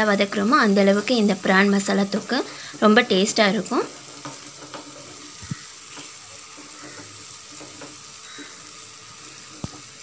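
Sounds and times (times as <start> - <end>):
masala sizzling in oil: 0.0 - 10.0
spatula scraping a pan: 2.4 - 10.0.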